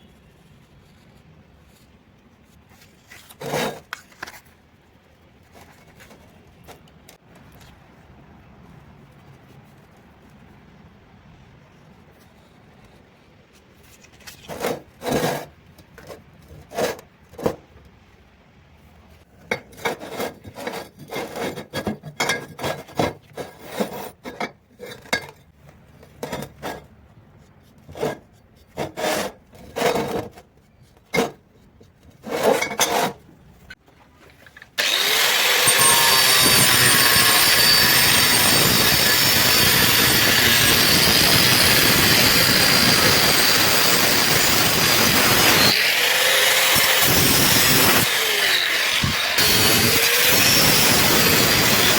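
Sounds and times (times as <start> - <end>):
loud power tool running: 34.8 - 51.9.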